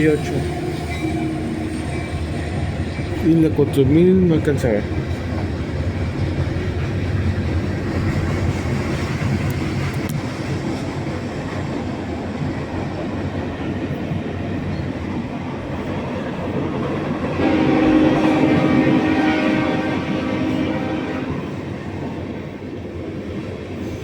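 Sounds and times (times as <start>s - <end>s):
freight train rumbling past: 0.0s - 24.0s
locomotive air horn: 17.4s - 21.6s.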